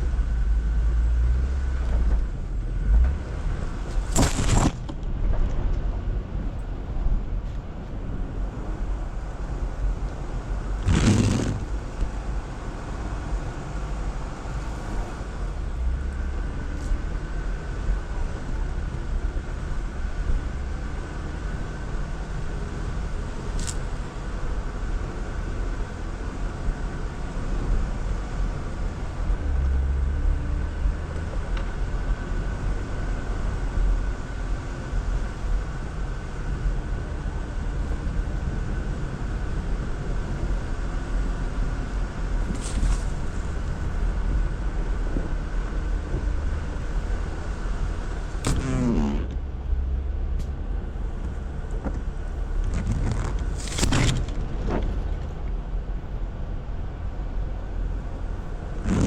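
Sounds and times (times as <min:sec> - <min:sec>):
vehicle engine and tyres rumbling: 0:00.0 - 0:59.0
sharp knock or scrape: 0:04.1 - 0:04.9.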